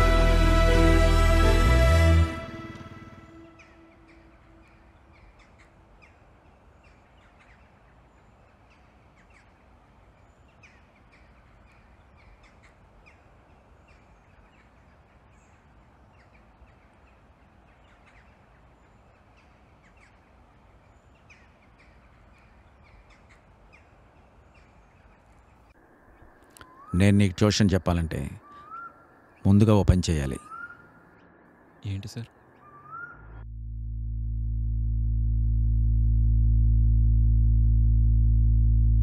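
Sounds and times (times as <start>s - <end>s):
low steady hum: 0.0s - 39.0s
crows cawing: 28.4s - 29.4s.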